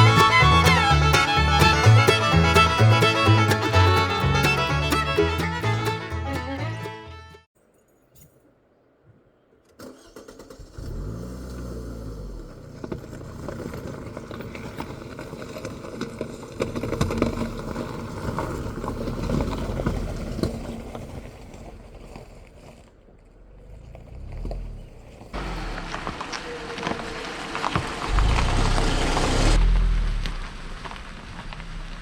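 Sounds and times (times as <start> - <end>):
engine starting and running: 0.0 - 7.1, 9.7 - 22.2, 23.2 - 32.0.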